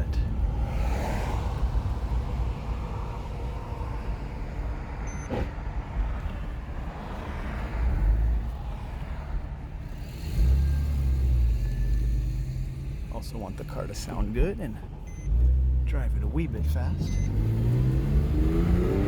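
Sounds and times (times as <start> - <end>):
car cabin engine and tyre rumble: 0.0 - 19.0.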